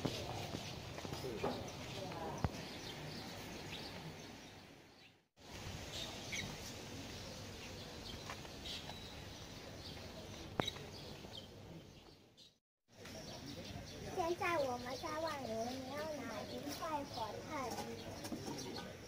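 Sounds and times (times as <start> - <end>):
faint outdoor ambience: 0.0 - 19.0
bird chirps: 7.2 - 17.2.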